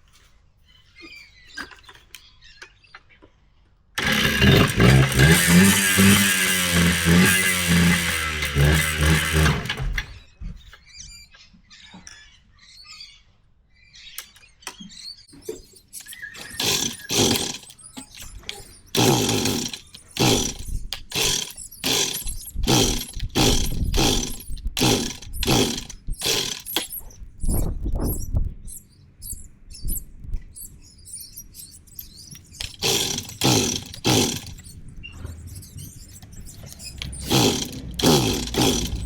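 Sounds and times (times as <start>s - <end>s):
dirt bike engine cutting out: 4.0s - 10.2s, 16.4s - 17.7s, 19.0s - 26.7s, 32.6s - 34.6s, 36.9s - 39.0s
engine kick-start coughing: 4.0s - 10.2s, 16.4s - 17.7s, 19.0s - 26.7s, 32.6s - 34.6s, 37.0s - 39.0s.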